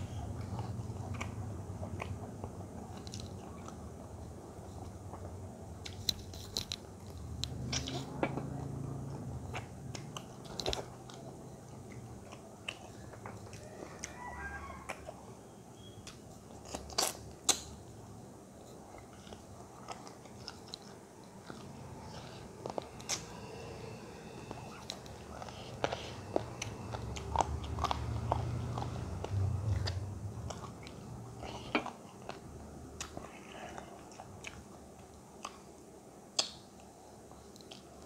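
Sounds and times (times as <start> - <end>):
wet chewing and biting: 4.8 - 8.8, 9.4 - 15.1, 15.8 - 17.8, 24.5 - 35.7.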